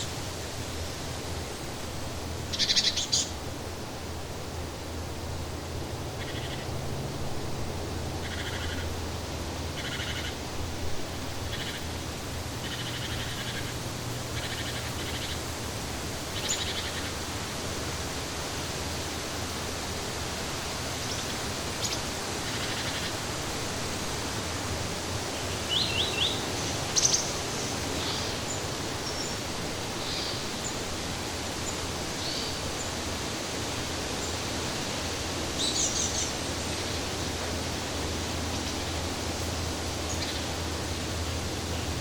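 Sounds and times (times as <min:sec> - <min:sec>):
small birds chirping: 0:02.5 - 0:03.4, 0:09.8 - 0:10.4, 0:11.4 - 0:15.5, 0:16.3 - 0:17.2, 0:25.3 - 0:30.8, 0:40.0 - 0:40.6.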